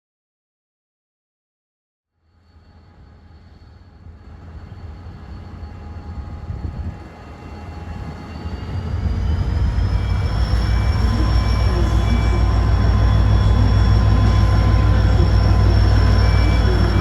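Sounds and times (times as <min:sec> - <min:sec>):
high whine: 0:02.5 - 0:17.0
diesel locomotive engine rumbling: 0:03.9 - 0:17.0.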